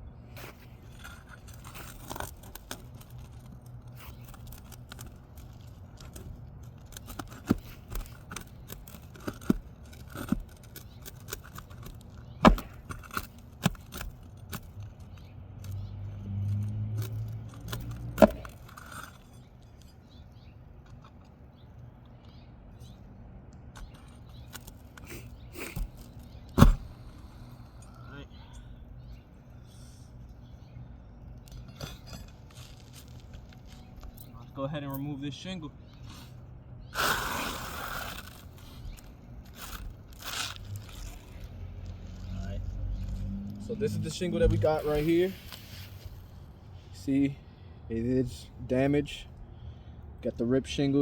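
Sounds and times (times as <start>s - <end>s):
pry bar scraping shingles: 0.3s - 28.0s, 29.1s - 34.4s, 37.0s - 42.3s
low rumble: 40.7s - 46.3s.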